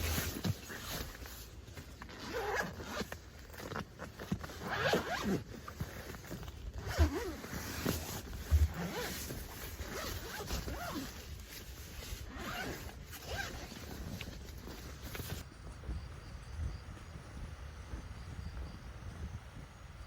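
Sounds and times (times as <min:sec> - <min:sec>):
zipper being pulled: 0:00.0 - 0:15.4.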